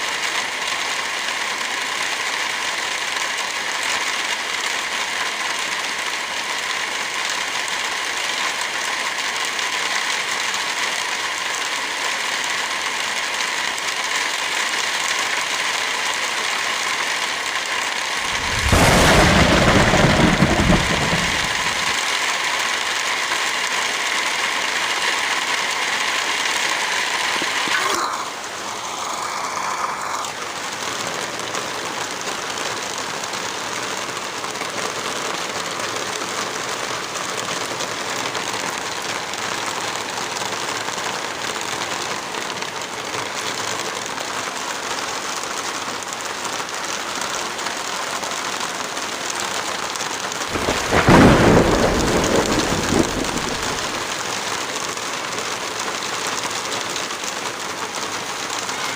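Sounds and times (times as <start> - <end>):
heavy rain: 0.0 - 58.9
thunder clap and rumble: 18.2 - 22.0, 50.5 - 54.2.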